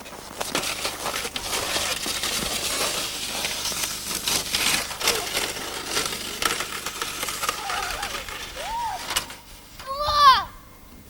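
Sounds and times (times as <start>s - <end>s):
snow crunching underfoot: 0.0s - 9.7s
snow scraping hiss: 0.0s - 10.1s
faint children's voices: 7.4s - 10.8s.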